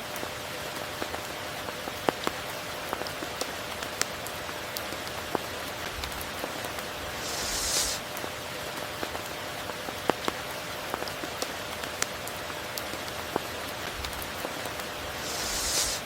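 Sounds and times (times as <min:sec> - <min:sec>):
rain hissing: 0:05.7 - 0:08.2, 0:13.7 - 0:16.0.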